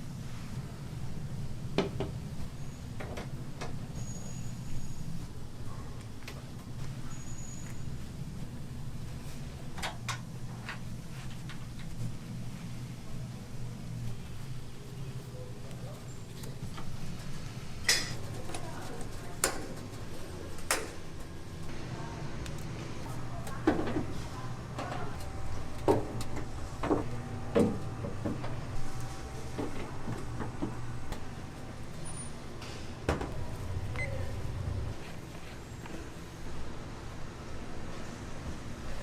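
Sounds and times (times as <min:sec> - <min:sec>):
utensils and cookware clattering: 0:17.8 - 0:18.6.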